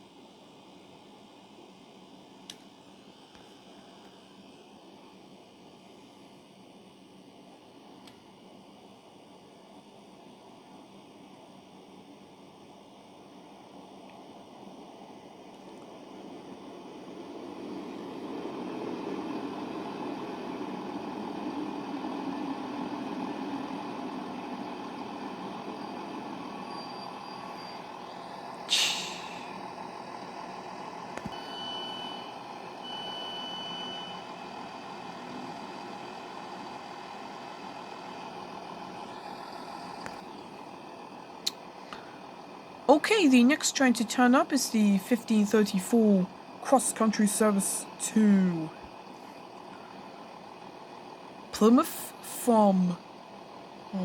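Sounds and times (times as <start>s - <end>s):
diesel train rumbling: 14.2s - 54.0s
air brakes hissing: 26.6s - 29.6s
high beeps: 31.4s - 34.2s.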